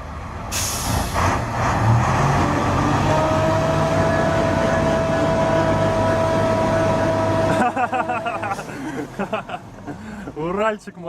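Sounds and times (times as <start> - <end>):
truck engine under load: 0.0 - 10.8
short hiss: 0.5 - 1.2.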